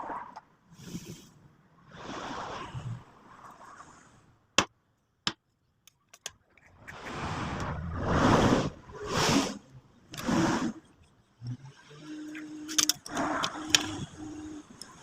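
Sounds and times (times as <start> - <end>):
rushing hissing air: 7.2 - 9.6.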